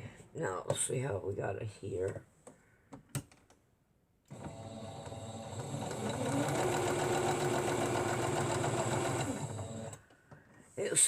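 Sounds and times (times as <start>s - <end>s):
electric sewing machine running: 4.3s - 10.0s.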